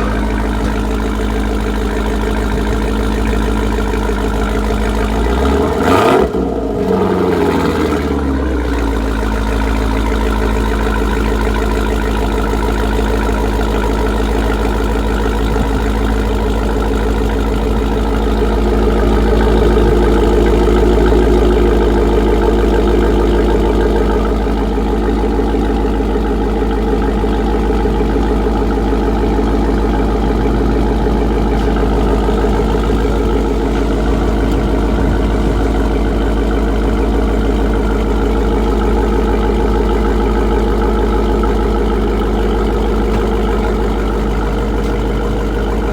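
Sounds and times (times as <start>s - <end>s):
engine revving and idling: 0.0s - 45.9s.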